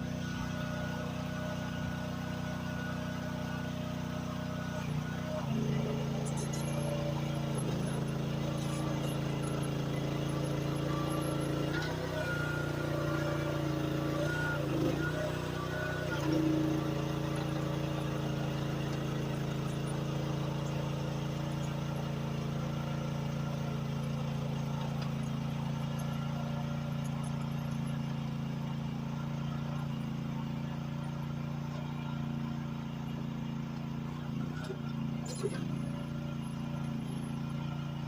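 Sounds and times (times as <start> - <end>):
excavator engine running: 0.0 - 38.0
grading bar scraping dirt: 4.7 - 20.6.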